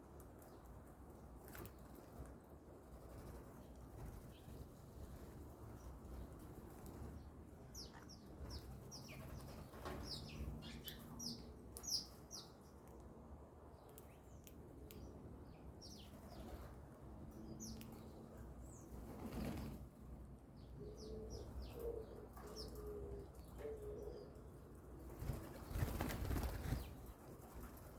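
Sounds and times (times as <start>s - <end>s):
small birds chirping: 3.5s - 27.8s
wings fluttering: 7.9s - 10.3s, 18.9s - 19.9s, 25.0s - 27.9s.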